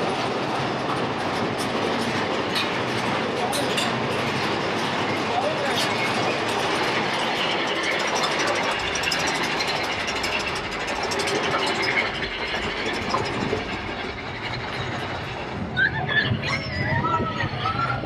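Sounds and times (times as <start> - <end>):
train rumbling and rattling: 0.0 - 18.0.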